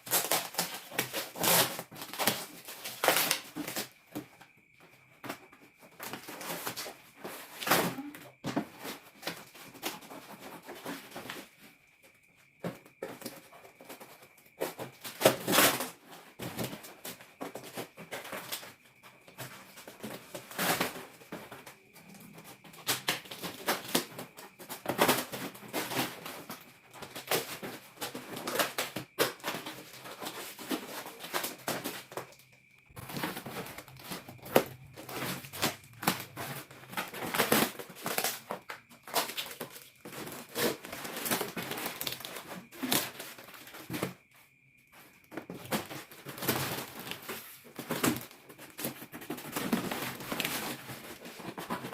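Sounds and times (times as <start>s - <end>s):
packaging rustling and crinkling: 0.0s - 4.3s, 19.4s - 44.2s, 45.0s - 51.9s.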